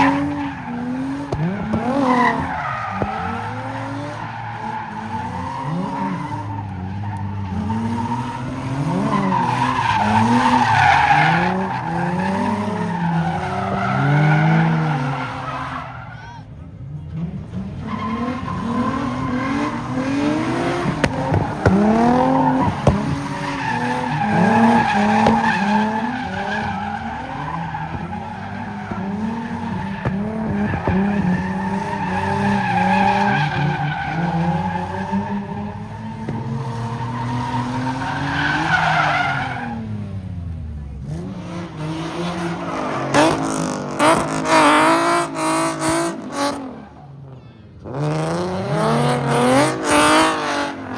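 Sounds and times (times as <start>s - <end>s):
tyres squealing and skidding: 0.0s - 40.4s, 41.0s - 50.9s
car engine revving hard: 17.2s - 33.3s, 47.8s - 50.9s.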